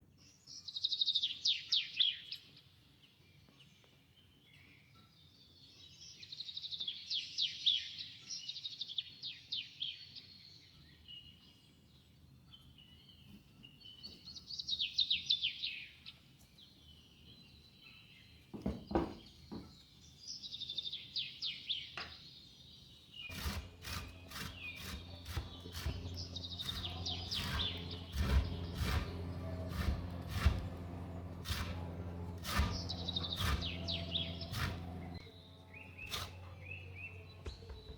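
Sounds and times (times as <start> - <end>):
low steady hum: 23.3 - 37.9.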